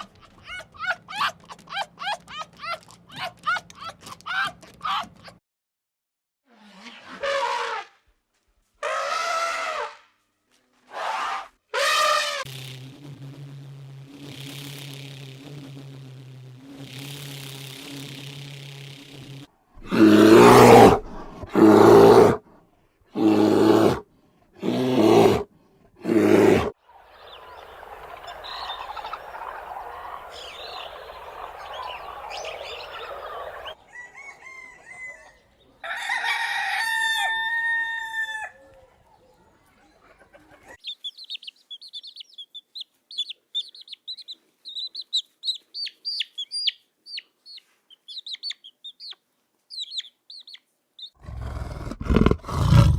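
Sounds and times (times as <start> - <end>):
chickens clucking: 26.9 - 35.4, 38.7 - 49.2
chickens calling: 26.9 - 36.0, 37.3 - 52.8
rooster crowing: 27.3 - 38.7.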